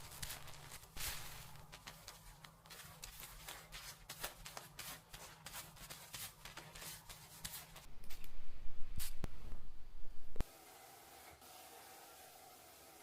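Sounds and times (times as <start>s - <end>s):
fingers scratching through hair: 0.0s - 8.3s.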